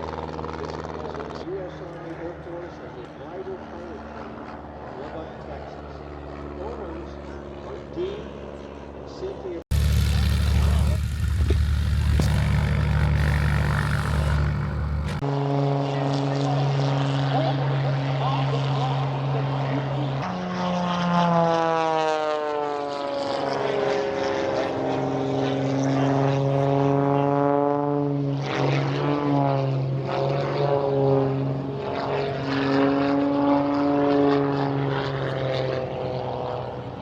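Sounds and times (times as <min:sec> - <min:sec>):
propeller airplanes flying past: 0:00.0 - 0:37.0
steady low engine drone: 0:08.1 - 0:37.0.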